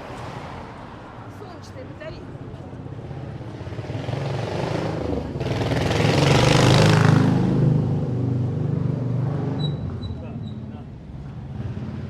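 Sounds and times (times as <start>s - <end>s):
vehicle engine passing: 3.0s - 12.0s.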